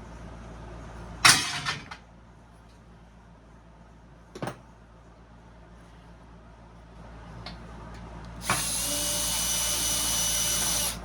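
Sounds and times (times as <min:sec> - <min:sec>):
power drill running: 0:08.4 - 0:11.0.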